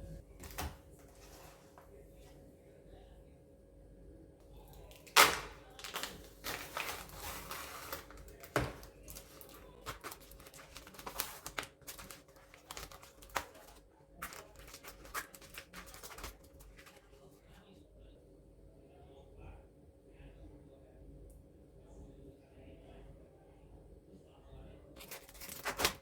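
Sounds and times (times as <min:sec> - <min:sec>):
rustling and crinkling: 0:00.2 - 0:02.4, 0:04.7 - 0:17.6, 0:25.0 - 0:26.0.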